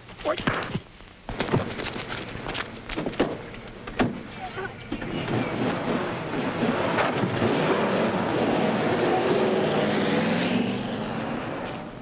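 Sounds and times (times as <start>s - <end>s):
car engine revving: 5.0s - 12.0s.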